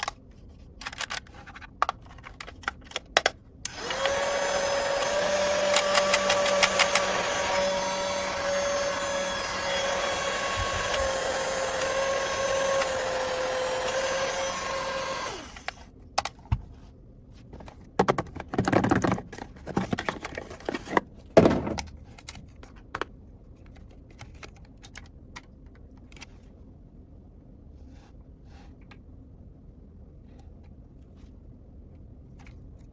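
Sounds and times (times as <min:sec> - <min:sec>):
plastic pieces clicking and rustling: 0:00.0 - 0:04.2, 0:05.0 - 0:07.2, 0:21.7 - 0:26.4
small motor whirring: 0:03.7 - 0:15.9.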